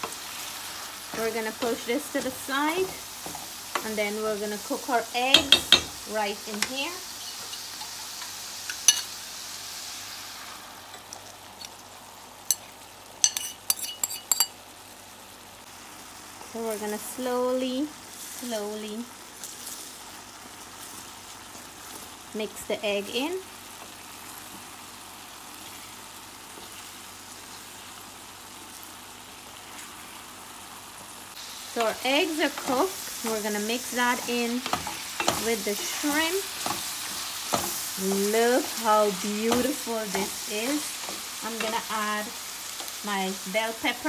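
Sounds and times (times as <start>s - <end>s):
food sizzling in frying pan: 0.0s - 44.0s
utensil clinking on pan: 13.2s - 14.6s.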